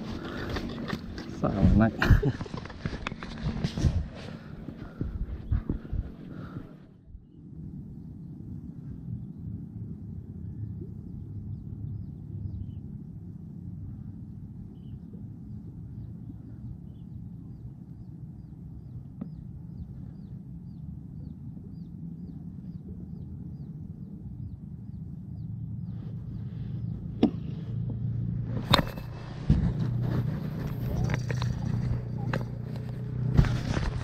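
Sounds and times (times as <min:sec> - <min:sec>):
handling noise: 0:00.0 - 0:06.4, 0:28.5 - 0:34.0
low rumble: 0:00.0 - 0:34.0
bird chirping: 0:10.4 - 0:13.0, 0:13.9 - 0:27.7.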